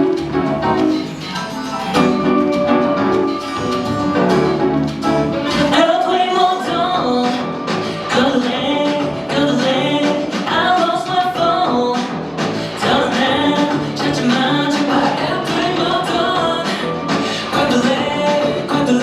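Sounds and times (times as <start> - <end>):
dance-pop song with singing: 5.3 - 19.0.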